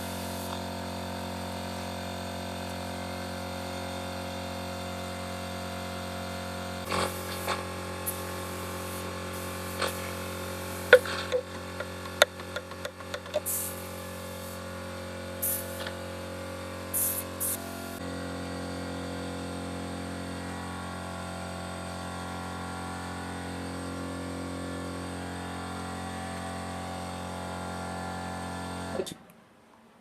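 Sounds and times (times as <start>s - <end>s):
mechanical hum: 0.0s - 30.0s
loud hisses of spray: 6.9s - 11.2s, 13.4s - 14.7s, 15.4s - 15.9s, 16.9s - 18.0s.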